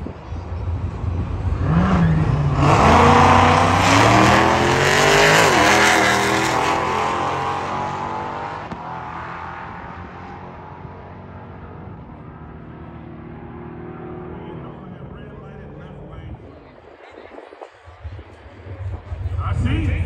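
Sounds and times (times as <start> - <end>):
cars accelerating hard: 0.5 - 16.5.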